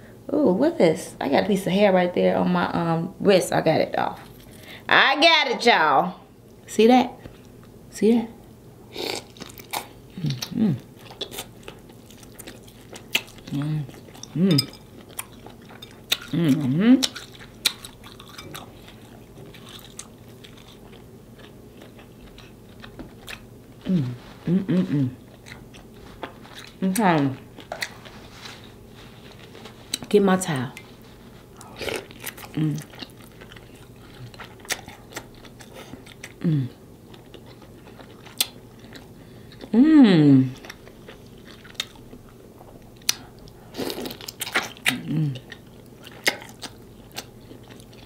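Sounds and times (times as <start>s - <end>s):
wet chewing sounds: 9.1s - 24.3s, 25.2s - 30.1s, 30.7s - 36.4s, 37.0s - 39.8s, 40.5s - 48.0s
person humming mmm: 10.2s - 10.9s, 13.5s - 14.7s, 16.2s - 17.1s, 23.8s - 25.2s, 31.6s - 32.9s, 36.4s - 36.8s, 39.6s - 40.6s, 44.9s - 45.5s.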